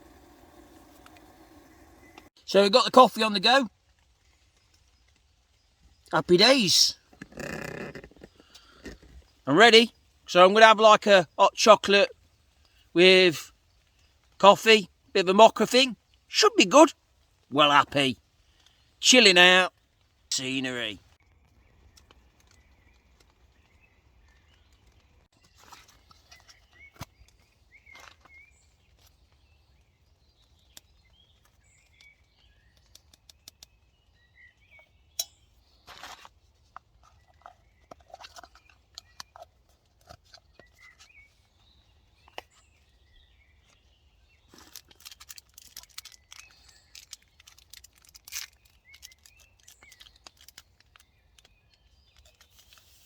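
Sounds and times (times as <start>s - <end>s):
faint birds chirping: 0.0s - 53.0s.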